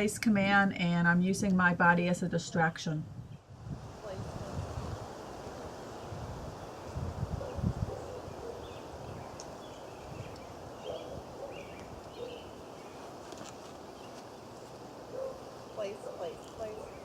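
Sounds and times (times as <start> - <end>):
wind buffeting microphone: 0.0 - 13.2
steady outdoor hiss: 0.0 - 17.0.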